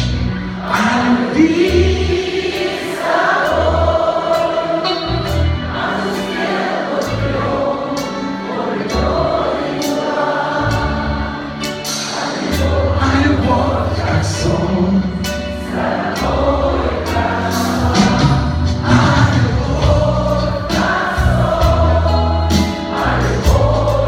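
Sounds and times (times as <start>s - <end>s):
voices singing: 0.0s - 24.0s
steady drum beat: 15.7s - 24.0s
bass notes: 16.2s - 24.0s.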